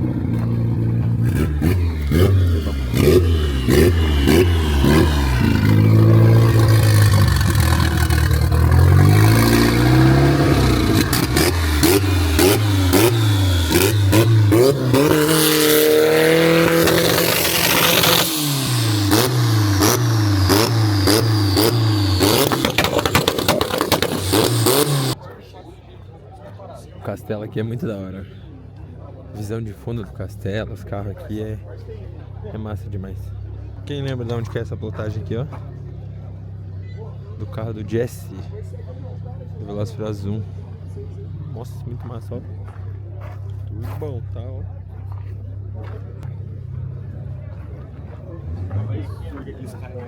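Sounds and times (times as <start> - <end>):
car engine revving in blips: 0.0 - 25.2, 32.9 - 50.0
sharp engine pops: 19.1 - 25.2.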